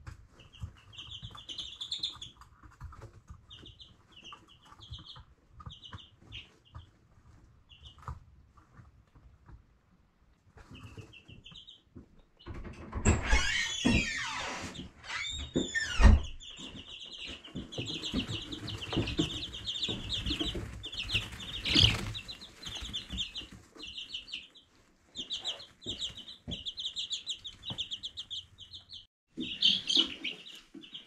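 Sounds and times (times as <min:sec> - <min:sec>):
chicks peeping: 0:00.0 - 0:31.0.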